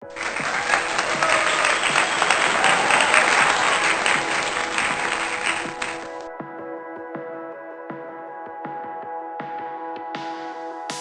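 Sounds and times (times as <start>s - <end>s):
applause: 0.0s - 6.3s
background music: 0.0s - 11.0s.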